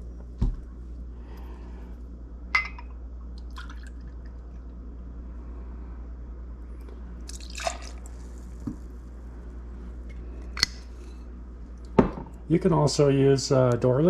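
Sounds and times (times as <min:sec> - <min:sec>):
glass clinks: 0:02.6 - 0:02.9
liquid pouring: 0:03.3 - 0:04.5, 0:07.3 - 0:08.4.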